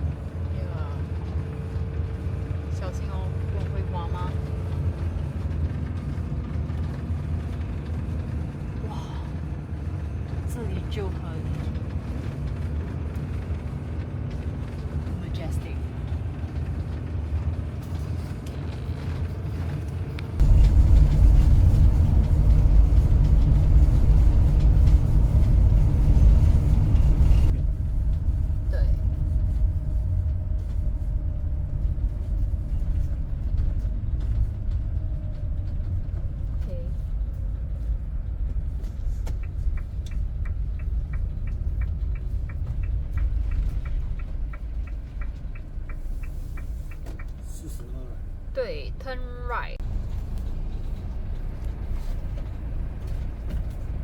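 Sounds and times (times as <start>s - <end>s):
motorhome engine rumble: 0.0s - 54.0s
tyres on the road: 0.0s - 54.0s
turn signal ticking: 37.3s - 54.0s.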